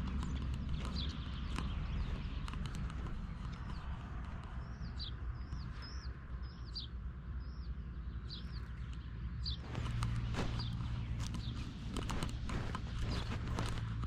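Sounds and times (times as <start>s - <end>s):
small bird chirping: 0.0s - 14.0s
scuffs and knocks: 9.6s - 14.0s.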